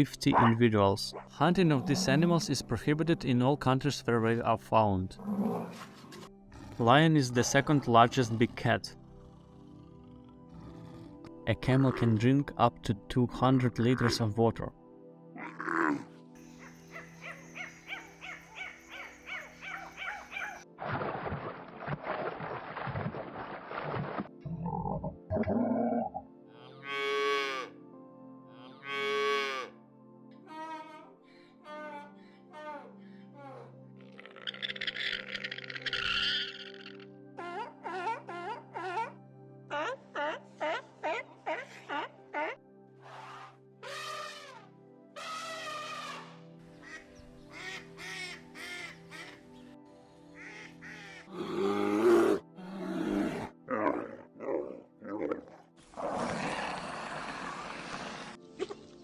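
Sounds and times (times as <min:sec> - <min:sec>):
low background music drone: 0:00.0 - 0:59.0
animal calls: 0:00.3 - 0:00.6, 0:15.4 - 0:20.6, 0:34.1 - 0:49.4
cattle mooing: 0:01.8 - 0:02.2.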